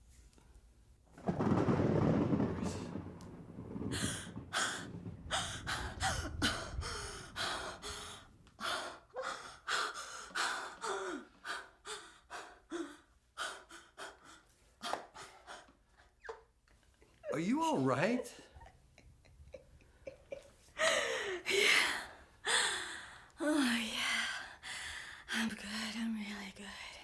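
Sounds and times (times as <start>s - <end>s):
woman gasping and breathing hard: 4.0s - 15.7s, 20.8s - 23.3s.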